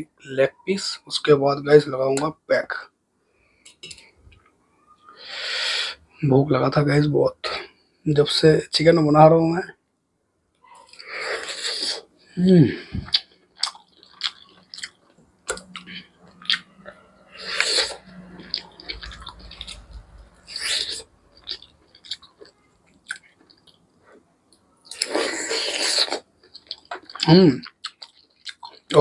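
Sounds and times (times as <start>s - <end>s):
chewing and biting chicken: 13.1s - 16.7s.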